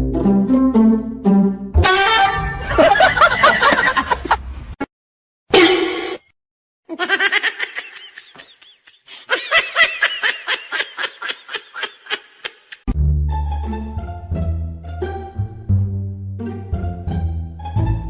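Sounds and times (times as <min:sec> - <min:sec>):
plucked-string music: 0:00.0 - 0:02.7, 0:12.9 - 0:18.0
person laughing hard: 0:02.6 - 0:04.4, 0:06.9 - 0:12.9.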